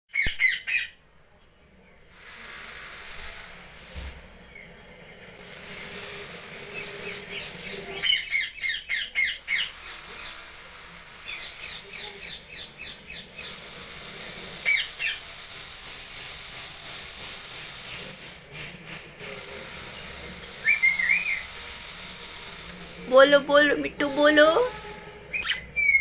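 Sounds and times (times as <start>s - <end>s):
parrot squawking: 25.4s - 25.6s.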